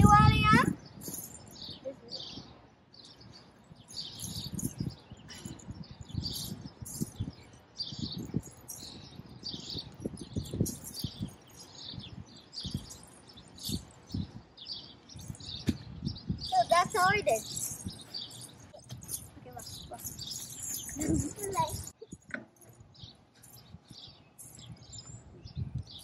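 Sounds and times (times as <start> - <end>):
birds chirping: 0.0 - 26.0
rustles: 9.6 - 15.9, 16.5 - 25.3
dull low thumps: 15.1 - 16.5.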